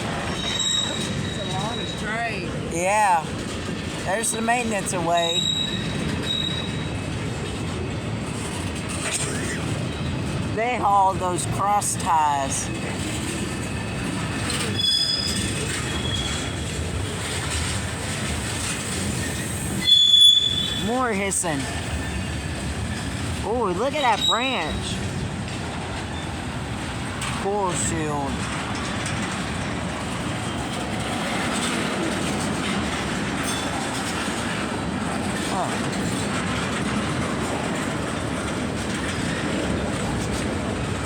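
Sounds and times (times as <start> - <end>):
train wheels rumbling on rail: 0.0 - 41.0
high-pitched wheel squeal: 0.3 - 2.2, 5.4 - 6.9, 14.6 - 16.4, 19.2 - 20.9.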